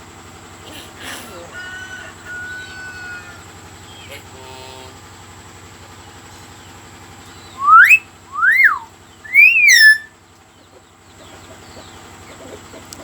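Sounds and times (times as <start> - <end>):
steady low hum: 0.0 - 13.0
pet bird whistling: 7.4 - 10.2.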